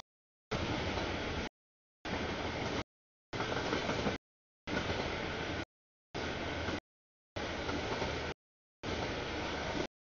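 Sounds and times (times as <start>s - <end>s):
freight train rumbling: 0.5s - 1.5s, 2.1s - 2.8s, 3.4s - 6.8s, 7.4s - 9.9s.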